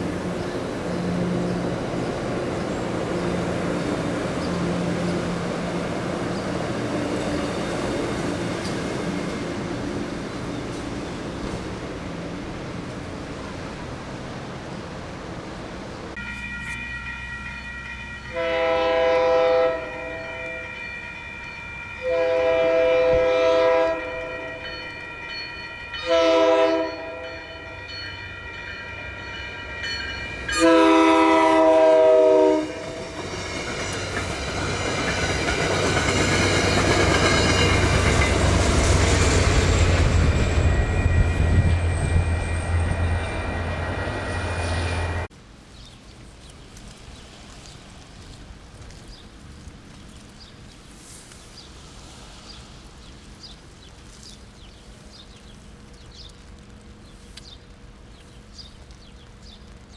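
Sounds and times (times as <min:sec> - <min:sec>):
train passing on rails: 0:00.0 - 0:59.9
locomotive air horn: 0:18.3 - 0:20.8, 0:22.0 - 0:24.7, 0:26.0 - 0:27.7, 0:30.5 - 0:33.2.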